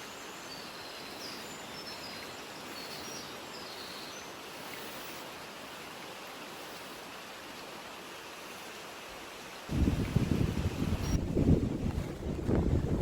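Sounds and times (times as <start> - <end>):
wind buffeting microphone: 9.7 - 13.0.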